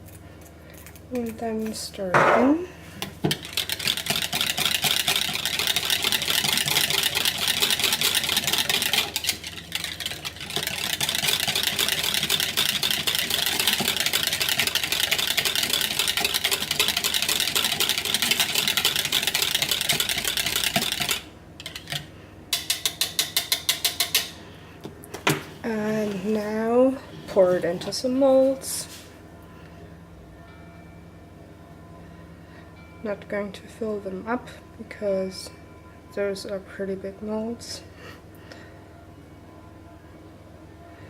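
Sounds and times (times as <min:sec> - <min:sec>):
whisk rattling against bowl: 0:03.0 - 0:24.4.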